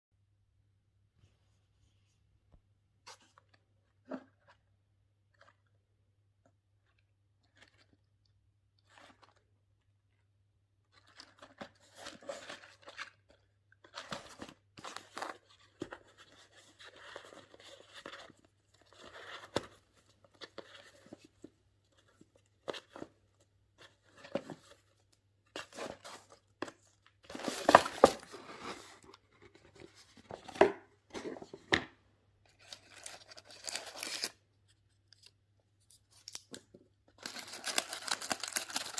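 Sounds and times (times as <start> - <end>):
packaging crinkling and tearing: 32.5 - 34.4, 37.2 - 38.9.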